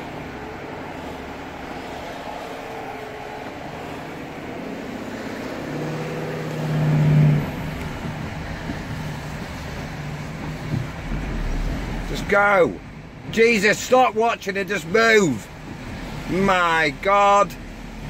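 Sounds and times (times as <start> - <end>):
truck engine running: 0.0 - 13.0
road noise: 0.0 - 18.0.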